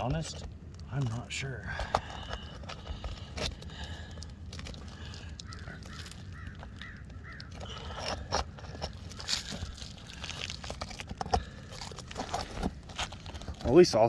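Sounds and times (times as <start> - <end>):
bird calling: 4.8 - 9.9.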